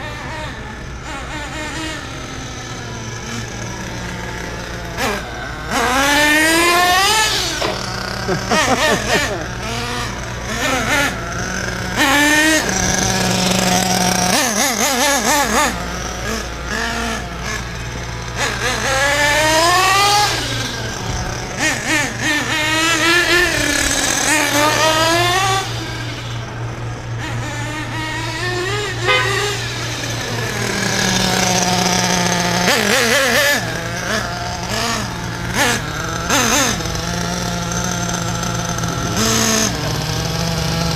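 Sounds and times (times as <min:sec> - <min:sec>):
model car engine revving: 0:00.0 - 0:40.9.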